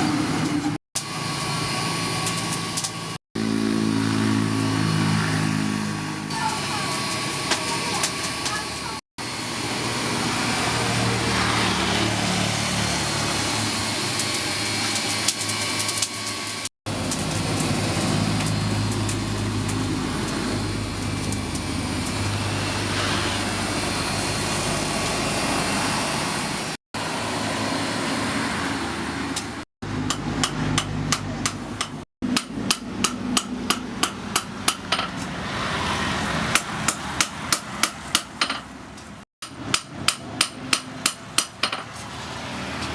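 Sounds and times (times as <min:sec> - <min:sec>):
machine humming: 0:00.0 - 0:15.4, 0:16.0 - 0:31.5
hammer striking metal: 0:30.0 - 0:35.3, 0:36.5 - 0:42.0.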